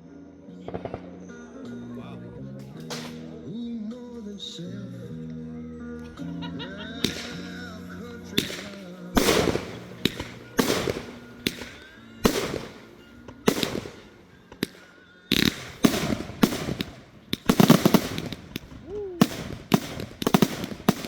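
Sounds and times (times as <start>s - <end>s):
music: 0.0s - 21.0s
fireworks banging and crackling: 0.7s - 1.2s, 2.7s - 3.3s, 7.0s - 21.0s.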